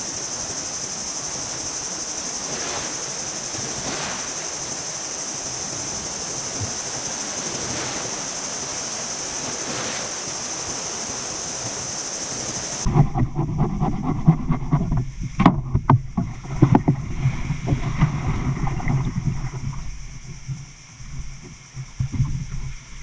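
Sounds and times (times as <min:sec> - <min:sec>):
sea waves washing: 0:00.0 - 0:13.1
crickets chirring: 0:00.0 - 0:23.0.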